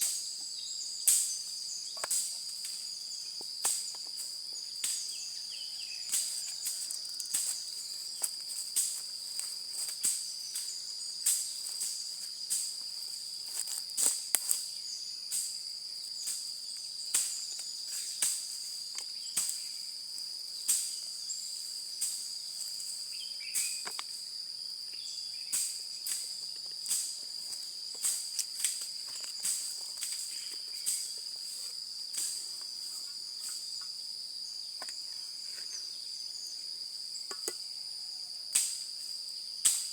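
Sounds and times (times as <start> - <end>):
insects trilling: 0.0 - 39.9
sharp cracks and pops: 13.5 - 14.6, 25.6 - 31.2.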